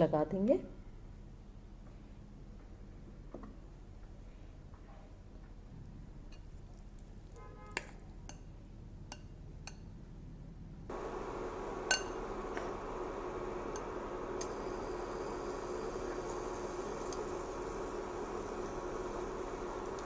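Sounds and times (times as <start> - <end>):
frying pan hissing: 10.9 - 20.0
utensils clinking on pan and bowl: 11.8 - 12.3.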